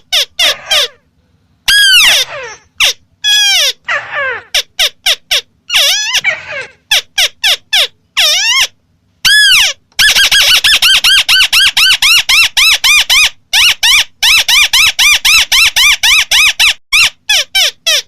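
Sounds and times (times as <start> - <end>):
bird harsh calls: 0.0 - 14.0.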